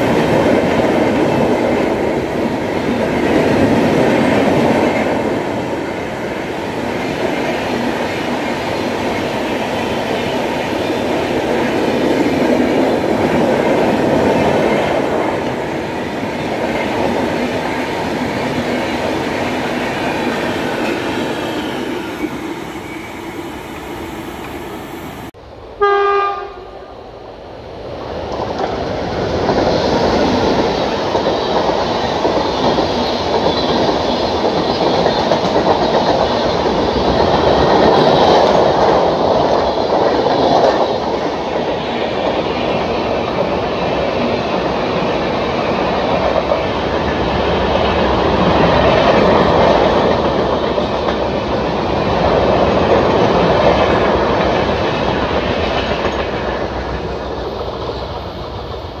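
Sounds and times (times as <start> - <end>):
train wheels clattering over rails: 0.0 - 25.3, 28.1 - 59.0.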